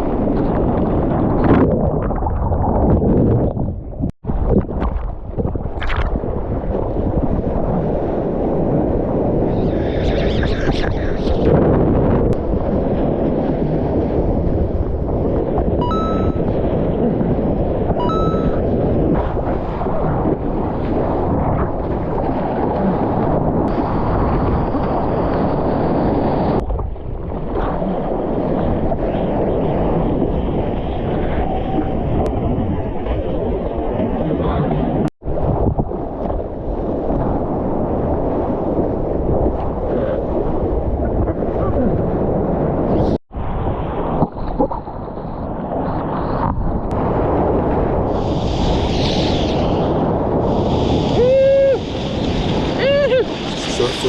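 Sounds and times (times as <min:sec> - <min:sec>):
wind buffeting microphone: 0:00.0 - 0:54.0
ocean surf rushing: 0:47.0 - 0:54.0.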